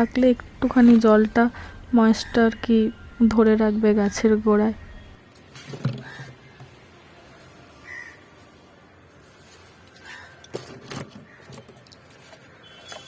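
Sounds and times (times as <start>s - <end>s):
crow cawing: 7.8s - 8.2s, 10.0s - 10.5s.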